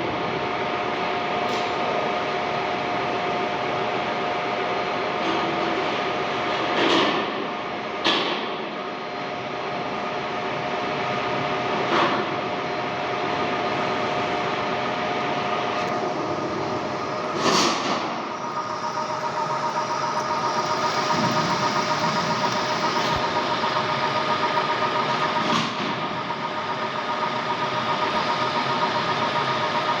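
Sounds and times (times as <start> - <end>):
metal lathe whining: 15.7 - 30.0.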